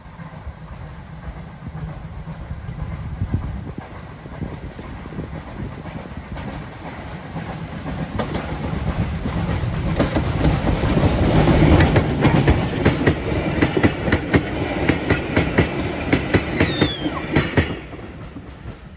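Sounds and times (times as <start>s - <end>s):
train rumbling past: 0.0s - 18.9s.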